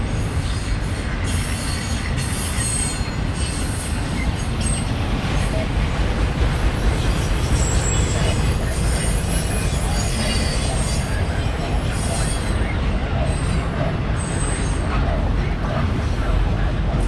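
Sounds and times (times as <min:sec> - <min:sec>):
train wheels rumbling on rail: 0:00.0 - 0:17.0
high wheel squeals: 0:07.0 - 0:14.9.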